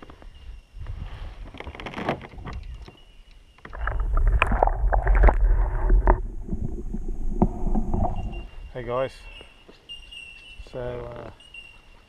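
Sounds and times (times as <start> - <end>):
water sloshing around camera: 3.6 - 8.7.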